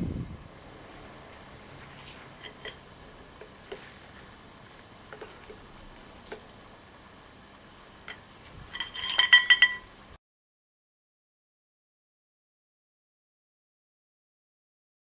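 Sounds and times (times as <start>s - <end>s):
metal parts clinking and rattling: 2.4s - 2.8s, 8.1s - 9.9s
sharp ringing metal strikes: 8.8s - 9.9s.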